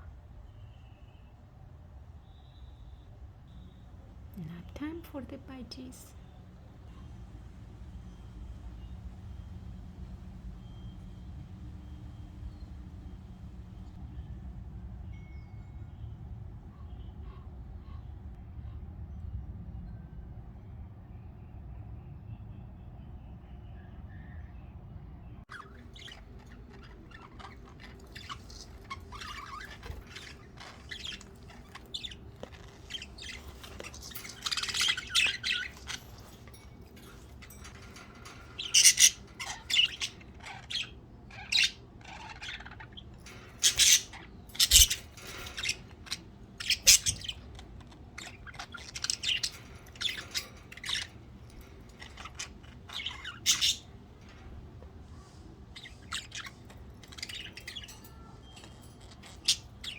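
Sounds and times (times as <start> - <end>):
budgerigars chirping and squawking: 25.5 - 59.9.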